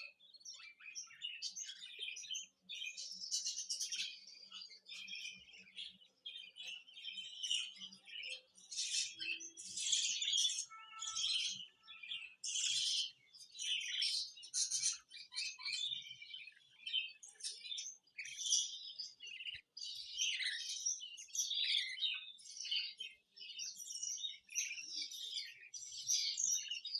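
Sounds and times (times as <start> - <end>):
budgerigar chicks chirping: 0.8 - 20.9.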